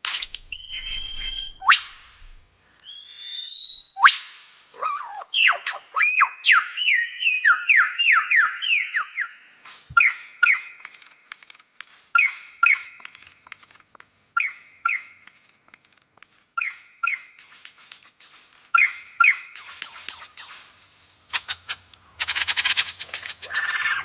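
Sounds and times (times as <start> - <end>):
bird whistled song: 0.2 - 11.0, 12.1 - 13.2, 14.4 - 15.4, 16.6 - 17.8, 18.7 - 24.0
bird call notes: 4.8 - 10.9, 14.4 - 15.4.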